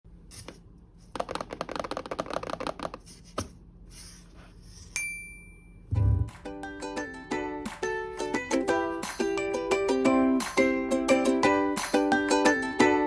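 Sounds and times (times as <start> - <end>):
bright ringing ping: 5.0 - 5.9
low thump: 5.9 - 6.4
plucked ukulele-like music: 5.9 - 13.0.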